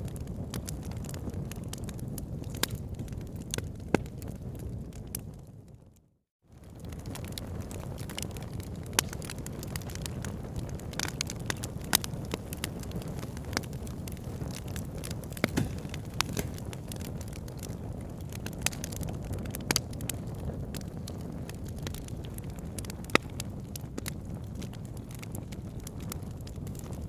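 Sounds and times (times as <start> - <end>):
fire popping: 0.0 - 5.4, 6.5 - 27.0
wood fire crackling: 0.0 - 5.4, 6.6 - 27.0.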